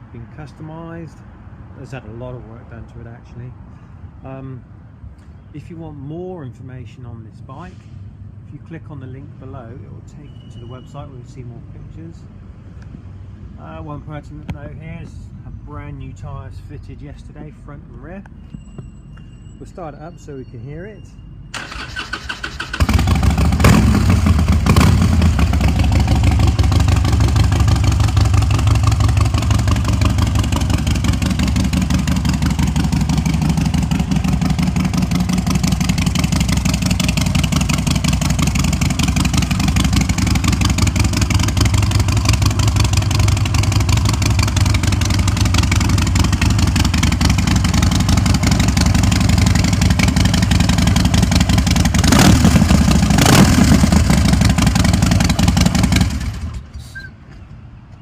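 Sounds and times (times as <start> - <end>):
motorcycle starter cranking: 21.6 - 25.5
motorcycle engine idling: 21.6 - 56.6.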